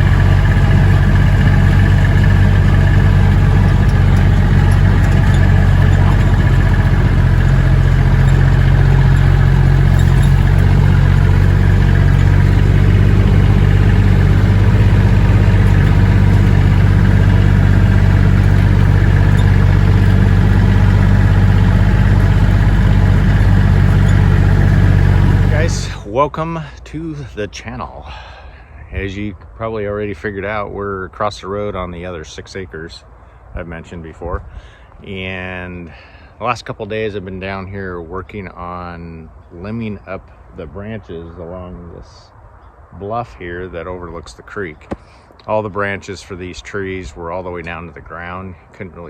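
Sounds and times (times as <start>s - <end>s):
utility vehicle engine humming: 0.0s - 26.1s.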